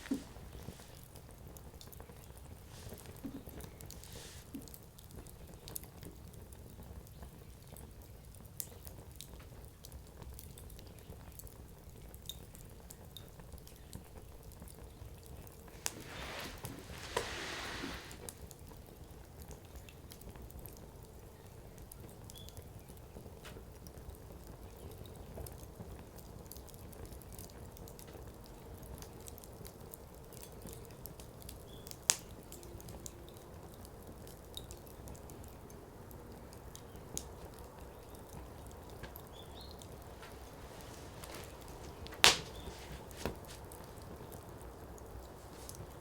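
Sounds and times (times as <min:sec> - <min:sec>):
fire hissing: 0:00.0 - 0:01.3, 0:02.2 - 0:04.8, 0:15.7 - 0:18.5, 0:36.8 - 0:46.0
fire flames rustling: 0:00.0 - 0:22.0, 0:22.7 - 0:46.0
firewood crackling: 0:00.0 - 0:46.0
firewood popping loudly: 0:36.7 - 0:46.0.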